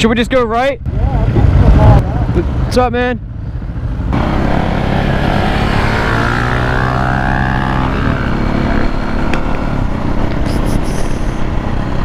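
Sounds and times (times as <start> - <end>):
wind noise: 0.0 - 2.7
motorcycle engine accelerating: 0.9 - 12.0.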